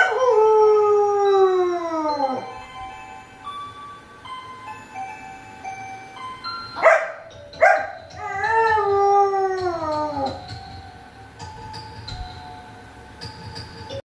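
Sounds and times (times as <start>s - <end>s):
dog howling: 0.0s - 2.6s, 6.8s - 10.6s
soft background music: 0.0s - 14.0s
dog barking: 6.8s - 8.0s.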